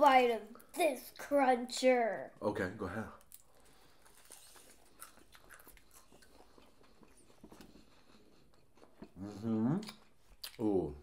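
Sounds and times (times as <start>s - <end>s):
chewing crunchy food: 3.1s - 10.7s.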